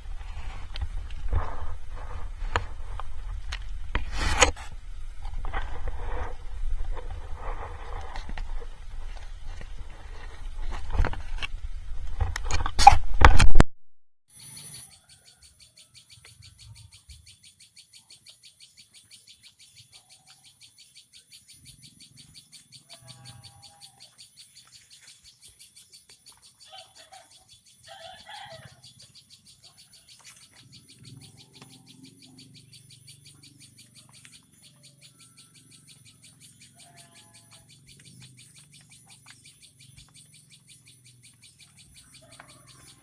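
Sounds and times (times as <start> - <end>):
faint bird calls: 14.4 - 43.0.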